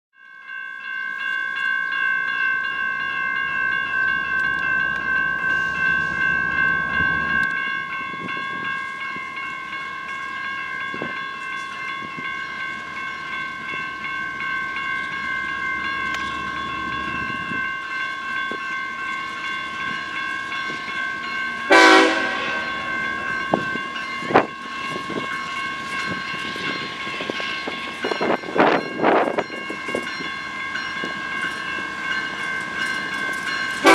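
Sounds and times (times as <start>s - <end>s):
freight train rumbling past: 2.4s - 33.9s
short loud horn blast: 21.7s - 22.8s.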